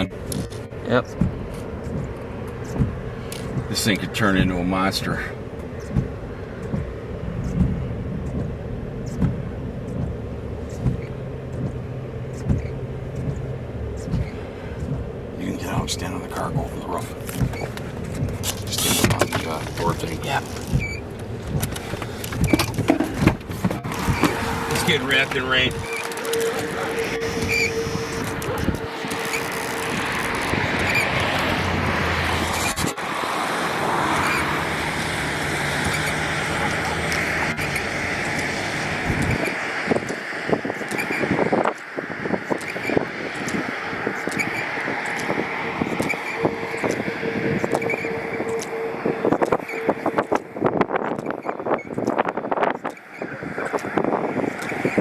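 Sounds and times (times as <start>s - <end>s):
steady low hum: 0.0s - 40.7s
low rumble inside car: 0.0s - 55.0s
rushing wind noise: 0.0s - 55.0s.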